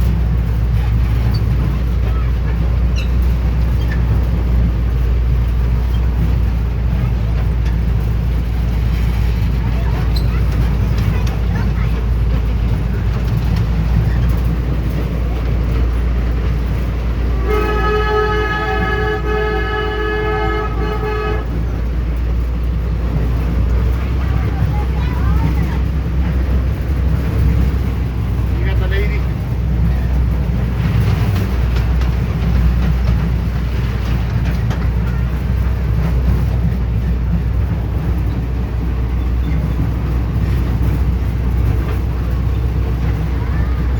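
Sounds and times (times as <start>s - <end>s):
train rumbling in motion: 0.0s - 43.9s
train horn: 17.2s - 21.9s.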